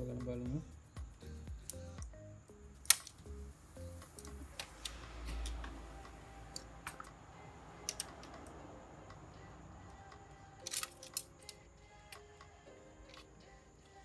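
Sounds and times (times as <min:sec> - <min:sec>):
small hand tools clicking: 0:01.2 - 0:02.2, 0:02.9 - 0:03.3, 0:07.8 - 0:08.5, 0:10.6 - 0:12.3.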